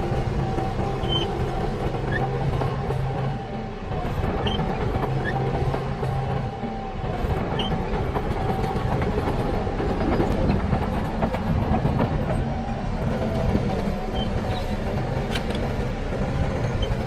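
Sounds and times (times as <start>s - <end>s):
steel crawler tracks clattering: 0.0s - 3.2s.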